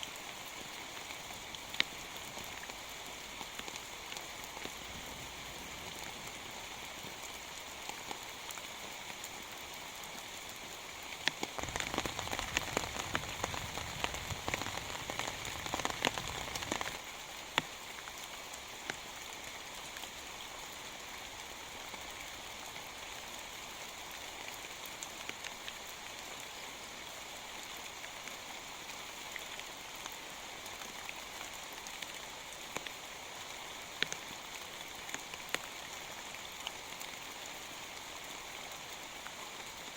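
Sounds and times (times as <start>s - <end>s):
heavy rain pattering: 0.2s - 9.4s, 10.4s - 20.1s.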